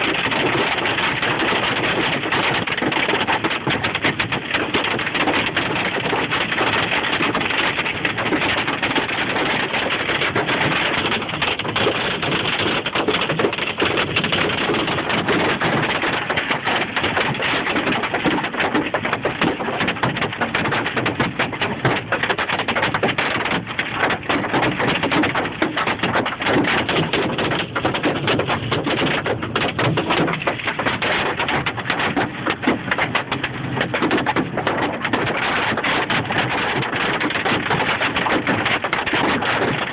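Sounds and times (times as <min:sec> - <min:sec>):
hail clattering: 0:00.0 - 0:39.9.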